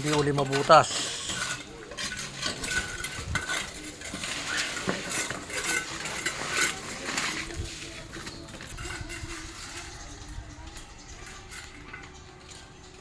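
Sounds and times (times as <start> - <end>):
stones scraping and clinking: 0.0 - 10.3.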